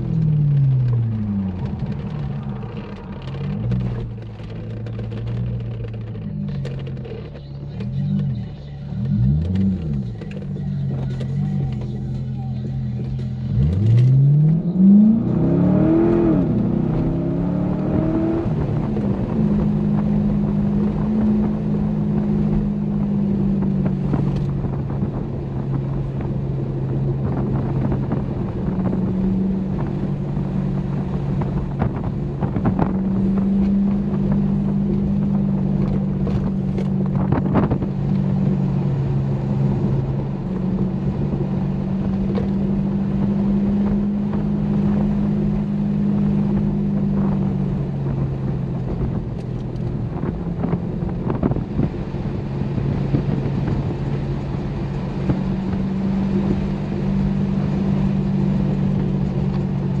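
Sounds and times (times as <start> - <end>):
car engine revving: 0.0 - 60.0
road and wind noise: 0.0 - 60.0.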